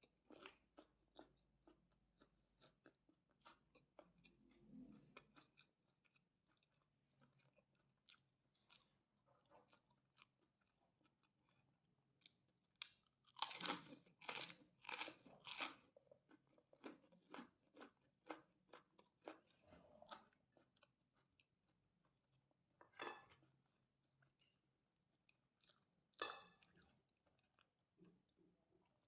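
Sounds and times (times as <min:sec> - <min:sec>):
person chewing: 0:00.0 - 0:22.3, 0:25.2 - 0:29.0
crisp crunches of crackers: 0:12.8 - 0:19.3.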